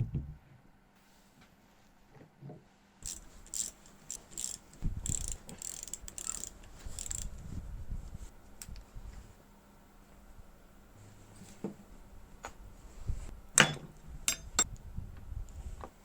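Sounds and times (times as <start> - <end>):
clicking and scraping on metal: 3.0 - 7.3.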